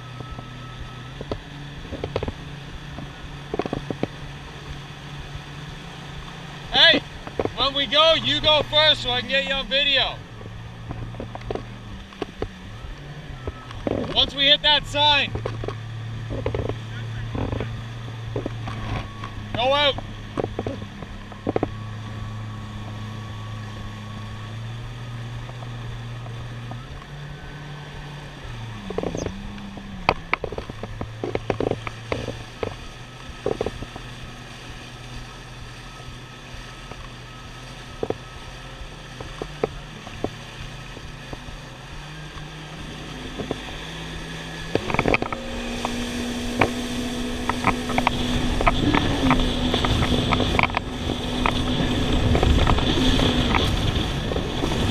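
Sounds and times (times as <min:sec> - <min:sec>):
jet ski engine running: 0:00.0 - 0:54.9
water splashes: 0:00.0 - 0:54.9
wind noise: 0:42.8 - 0:54.9.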